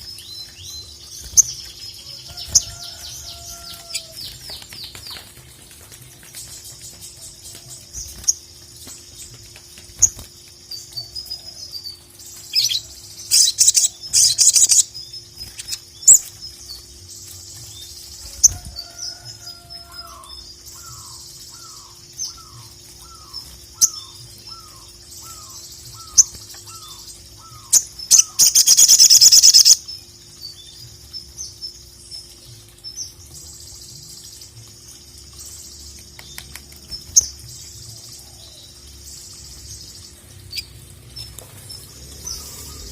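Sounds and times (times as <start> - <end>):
bird chirps and trills: 0.0 - 42.9
loud buzzy bird trills: 18.2 - 29.9.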